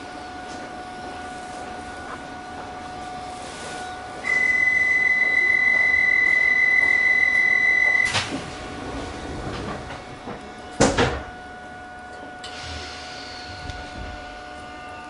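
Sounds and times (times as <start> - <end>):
train electrical hum: 0.0 - 15.0
high electronic warning tone: 1.6 - 8.2
train doors shutting knock: 8.0 - 11.4, 12.4 - 14.4.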